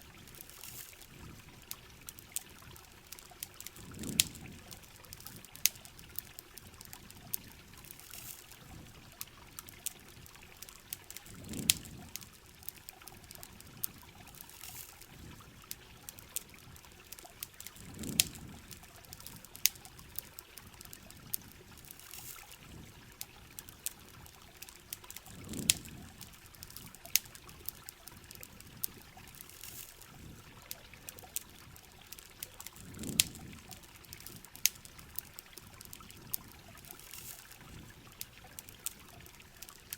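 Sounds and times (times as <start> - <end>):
campfire crackling and popping: 0.0 - 39.9
steady rain: 0.0 - 39.9
trickling water: 0.0 - 39.9.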